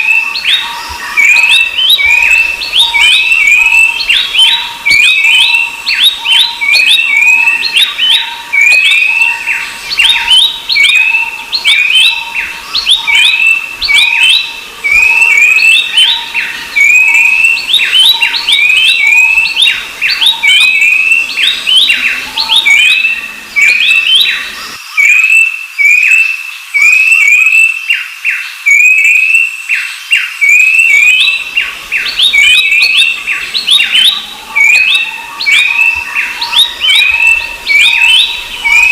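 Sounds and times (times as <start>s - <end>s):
birds chirping rapidly: 0.0s - 27.7s, 28.7s - 38.9s.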